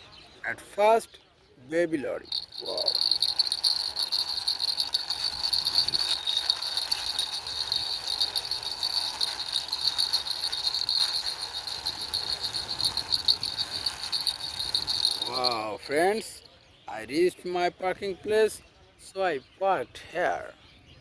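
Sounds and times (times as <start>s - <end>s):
cricket chirring: 2.2s - 15.8s
toy truck wheels rattling: 2.2s - 15.8s.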